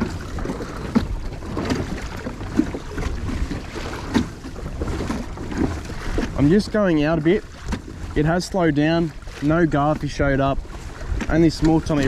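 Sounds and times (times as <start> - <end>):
water lapping against kayak hull: 0.0 - 12.0
wind buffeting microphone: 0.0 - 12.0.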